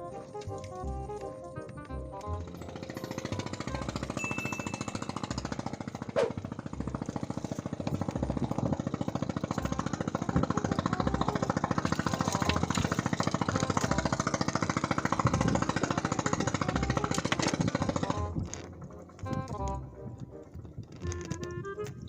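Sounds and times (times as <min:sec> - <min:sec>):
small engine chugging: 0:00.0 - 0:22.0.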